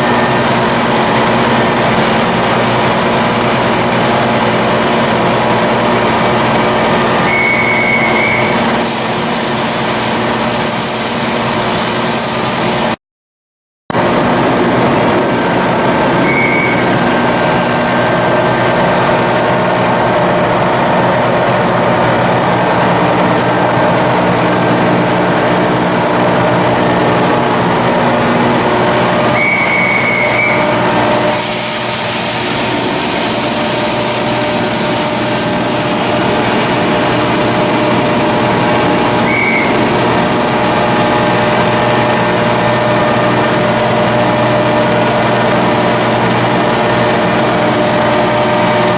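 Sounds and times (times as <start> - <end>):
diesel machinery running: 0.0 - 13.0, 13.9 - 48.9
short high beeps: 7.3 - 8.6, 16.2 - 16.9, 29.4 - 30.6
high hiss of rushing air: 8.7 - 13.0, 31.2 - 39.2.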